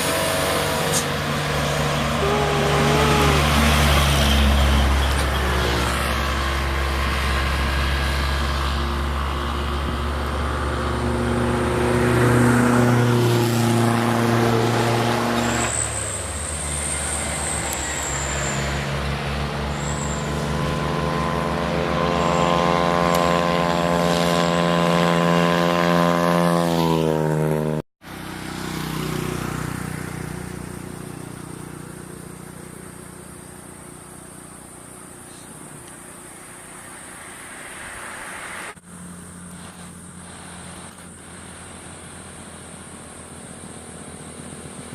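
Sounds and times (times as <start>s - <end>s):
quiet vehicle sound: 0.0s - 26.7s, 27.4s - 44.9s
truck engine revving: 0.0s - 27.8s
high squeal: 1.9s - 6.5s, 15.4s - 19.0s, 19.6s - 20.7s.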